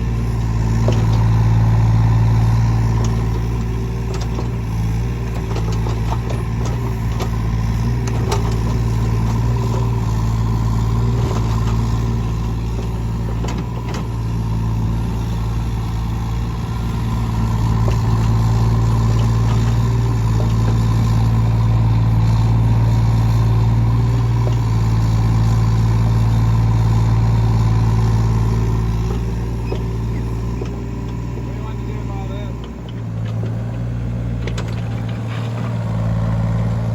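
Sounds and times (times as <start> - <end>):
heavy machinery engine running: 0.0 - 36.9.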